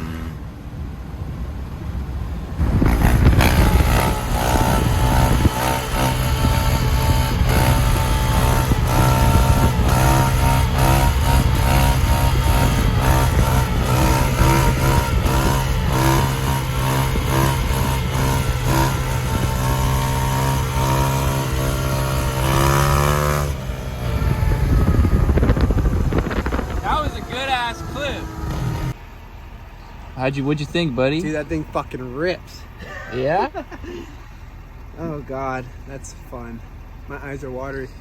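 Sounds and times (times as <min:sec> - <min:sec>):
dirt bike engine revving: 0:00.0 - 0:00.4, 0:02.6 - 0:29.0.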